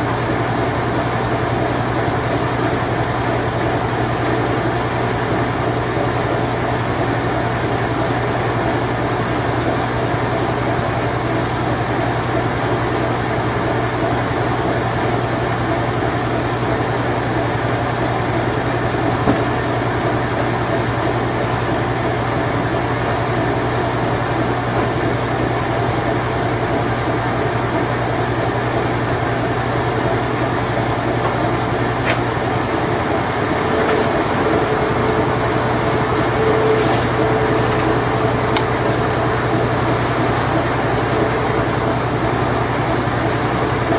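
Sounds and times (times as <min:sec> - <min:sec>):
washing machine humming: 0:00.0 - 0:43.9
washing machine click: 0:32.0 - 0:32.3
high steady tone: 0:32.7 - 0:42.8.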